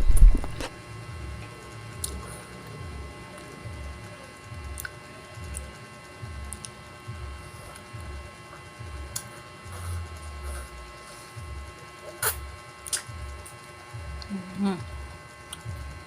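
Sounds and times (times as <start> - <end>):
faint steady hum: 0.0 - 16.0
wet mouth clicks and smacks: 12.2 - 13.1.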